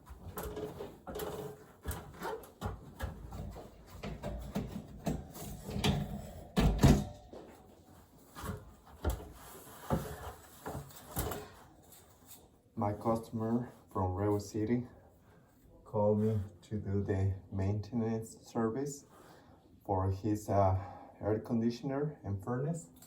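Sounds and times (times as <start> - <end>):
knocks and clatter of handling: 0.0 - 12.5.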